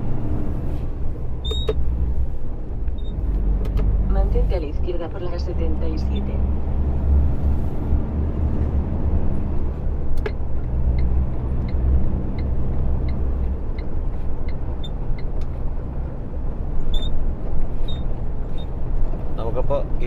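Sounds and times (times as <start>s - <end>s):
truck diesel engine droning: 0.0s - 19.6s
turn indicator ticking: 10.1s - 15.6s.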